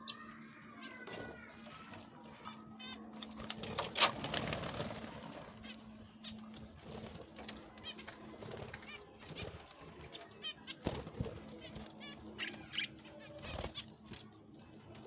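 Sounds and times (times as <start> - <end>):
birds chirping: 0.0 - 15.0
pigeon-like cooing: 0.0 - 15.0.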